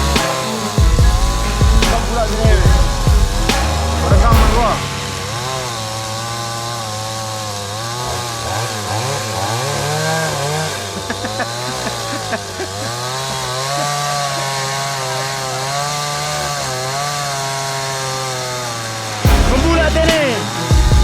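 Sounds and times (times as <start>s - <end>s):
chainsaws cutting wood: 0.0s - 21.0s.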